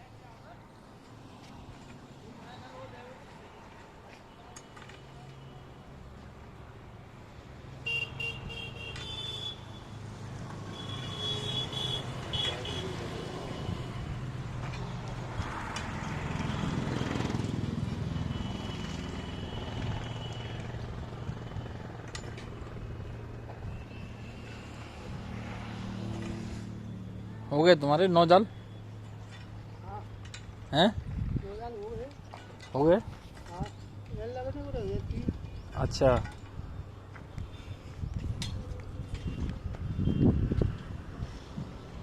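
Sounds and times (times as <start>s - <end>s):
vehicle passing close: 12.1s - 23.1s, 24.6s - 27.2s.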